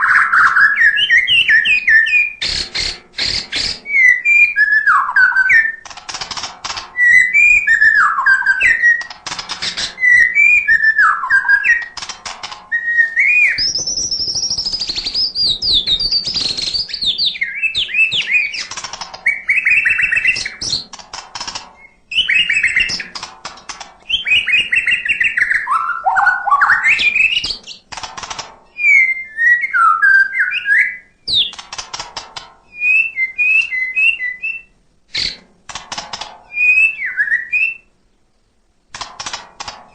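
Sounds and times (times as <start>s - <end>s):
bird singing whistled phrases: 0.0s - 5.8s, 7.0s - 9.1s, 9.7s - 11.9s, 12.7s - 18.7s, 19.3s - 20.8s, 21.8s - 23.1s, 24.1s - 27.8s, 28.8s - 31.5s, 32.7s - 35.4s, 36.5s - 37.9s
bird sharp clicks: 2.4s - 4.0s, 5.8s - 28.6s, 31.3s - 32.6s, 35.2s - 36.9s, 38.9s - 39.9s.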